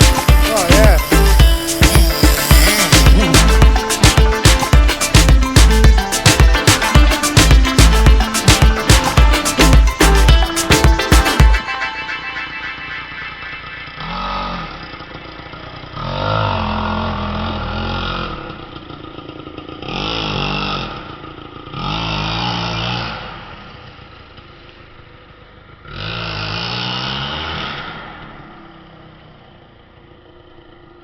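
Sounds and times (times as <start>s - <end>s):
rc car engine revving: 0.0s - 11.4s, 13.8s - 23.5s.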